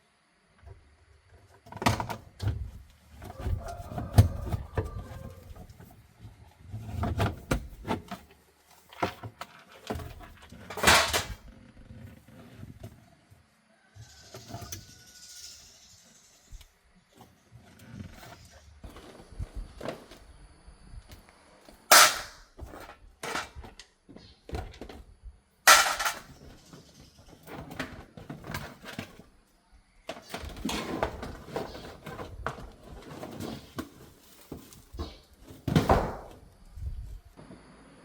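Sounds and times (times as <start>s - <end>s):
tools and parts clattering: 6.8s - 11.6s, 21.9s - 25.0s, 25.7s - 29.4s, 30.1s - 36.1s.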